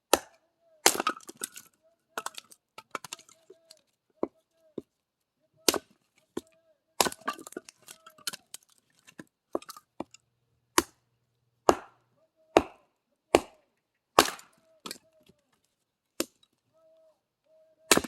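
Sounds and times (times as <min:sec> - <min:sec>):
axe chopping wood: 0:00.1 - 0:01.6, 0:05.7 - 0:05.9, 0:07.0 - 0:08.3, 0:10.8 - 0:11.0, 0:11.6 - 0:12.0, 0:12.6 - 0:13.6, 0:14.2 - 0:15.0
wood cracking and splintering: 0:00.8 - 0:03.8, 0:07.0 - 0:10.2.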